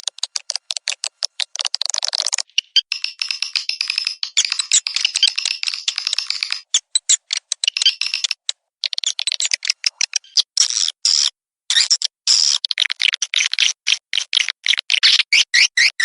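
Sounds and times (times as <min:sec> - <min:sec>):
recorded swiftlet twittering: 0:02.4 - 0:10.4.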